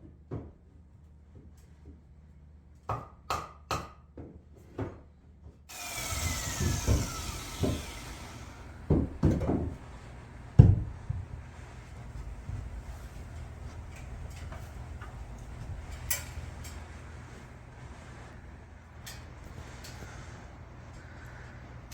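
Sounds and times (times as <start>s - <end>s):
power saw cutting wood: 5.7s - 9.8s
lumber knocking: 6.0s - 9.8s, 10.6s - 11.4s
heavy thump: 10.5s - 11.4s.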